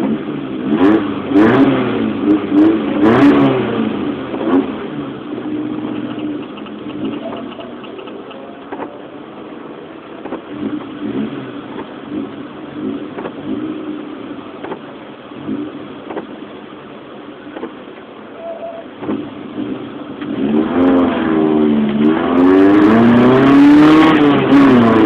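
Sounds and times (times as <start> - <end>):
car engine revving: 0.0 - 25.0
short clicks: 5.9 - 9.0.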